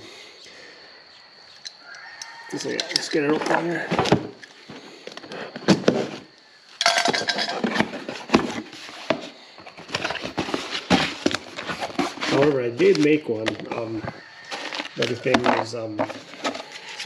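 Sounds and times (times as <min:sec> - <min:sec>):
metal hardware clinking: 0:01.6 - 0:03.2, 0:06.8 - 0:07.7
packaging rustling and crinkling: 0:07.5 - 0:17.0.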